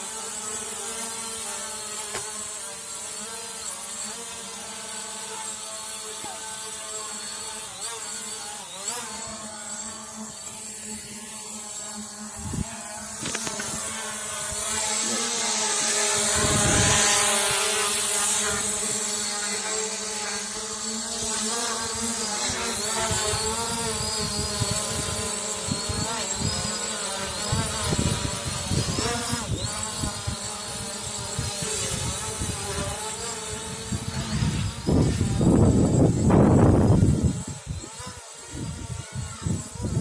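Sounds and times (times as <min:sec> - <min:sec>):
drone motors whining: 0:00.0 - 0:40.0
wind buffeting microphone: 0:16.2 - 0:17.4, 0:33.5 - 0:37.9.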